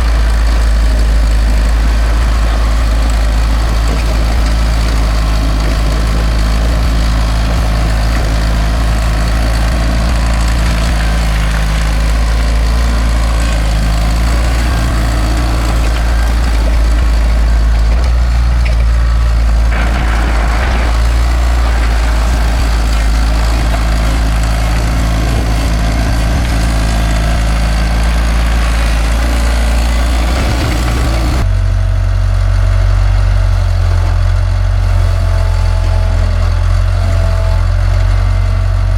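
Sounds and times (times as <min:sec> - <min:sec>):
bulldozer diesel engine running: 0:00.0 - 0:38.9.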